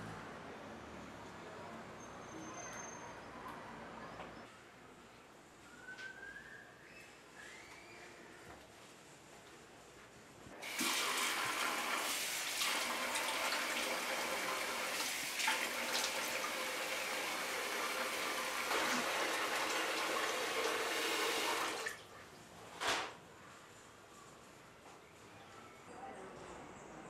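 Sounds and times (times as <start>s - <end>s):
running water splashing: 10.6s - 22.1s.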